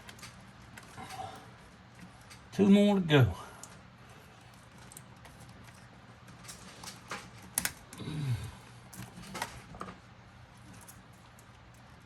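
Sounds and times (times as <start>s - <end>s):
person grunting with effort: 8.0s - 8.6s.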